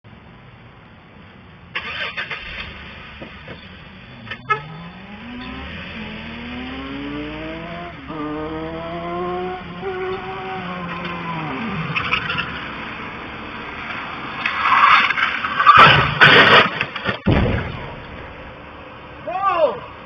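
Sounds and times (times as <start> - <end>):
motorcycle engine accelerating: 4.2 - 12.4.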